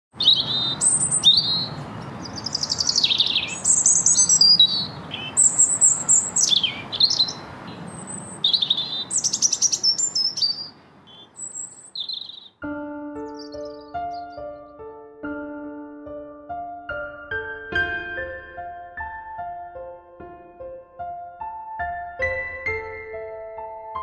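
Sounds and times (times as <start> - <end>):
birds singing and calling: 0.2 - 12.6, 13.2 - 14.6.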